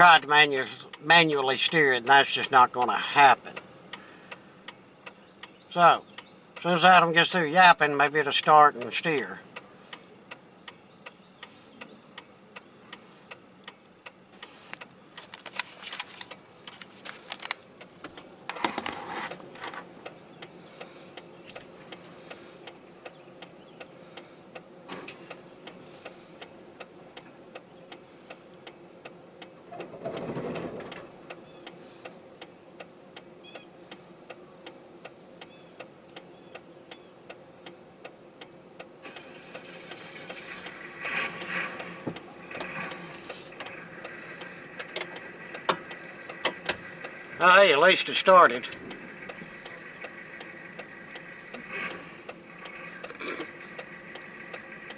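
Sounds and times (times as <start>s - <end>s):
hazard light flasher ticking: 0.2s - 6.8s, 30.9s - 54.9s.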